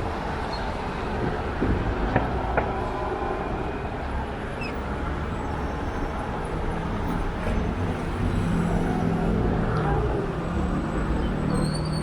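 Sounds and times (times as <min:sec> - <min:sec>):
road and traffic noise: 0:00.0 - 0:12.0.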